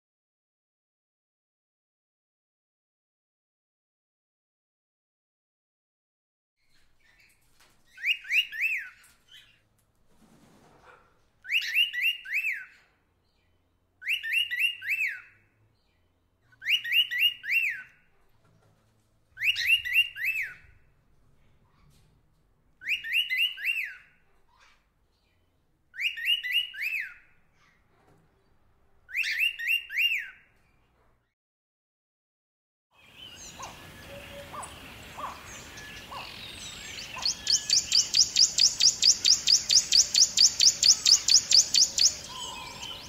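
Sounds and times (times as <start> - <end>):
bird call of high notes: 33.0 - 43.0.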